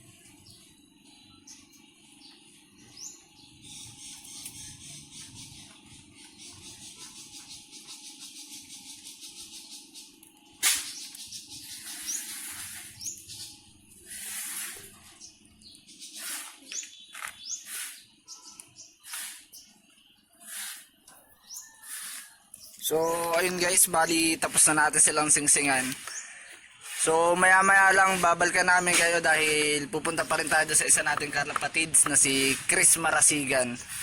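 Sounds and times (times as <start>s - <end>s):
birds chirping: 0.0s - 34.0s
sharp loud click: 10.6s - 11.2s
rustling noise: 11.8s - 13.2s, 14.0s - 15.1s, 26.8s - 34.0s.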